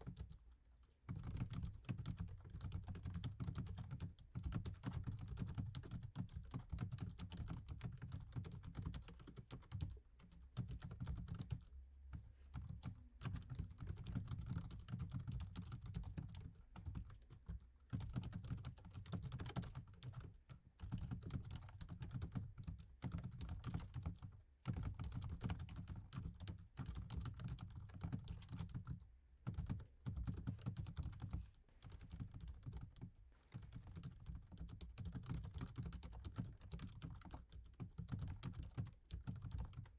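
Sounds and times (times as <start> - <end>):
fast laptop keyboard typing: 0.0 - 0.4, 1.1 - 11.7, 12.6 - 39.9.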